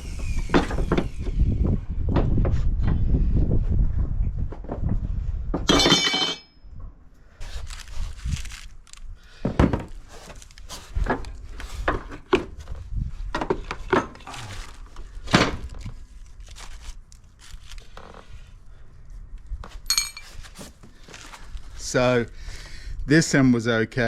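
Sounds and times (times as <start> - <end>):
metal tools clinking and thunking: 5.7 - 6.6, 19.9 - 20.5.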